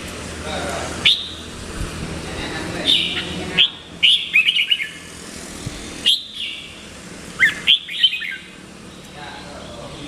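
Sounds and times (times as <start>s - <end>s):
bird singing warbled phrases: 0.8s - 1.6s, 2.6s - 5.2s, 6.0s - 10.0s.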